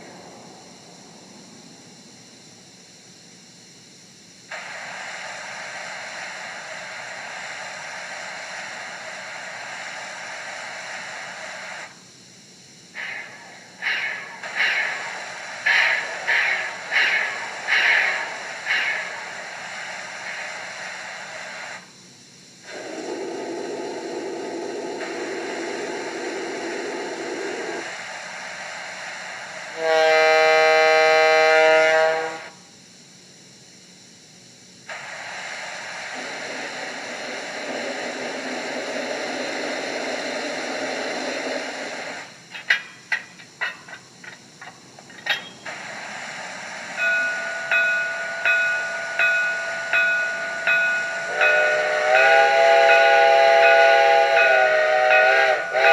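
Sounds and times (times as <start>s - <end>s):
rush of escaping steam: 0.0s - 55.9s
steam hiss: 0.0s - 55.9s
steam locomotive exhaust chuffs: 0.0s - 55.9s.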